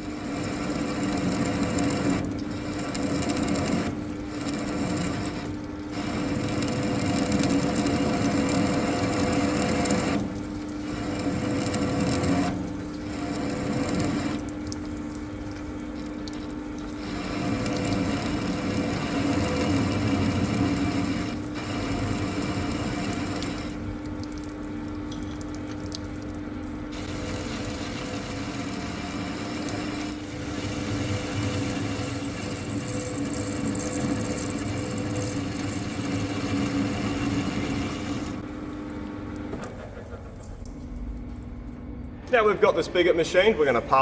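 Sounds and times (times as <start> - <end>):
lathe machine hum: 0.0 - 14.3, 17.0 - 23.9, 26.9 - 40.4.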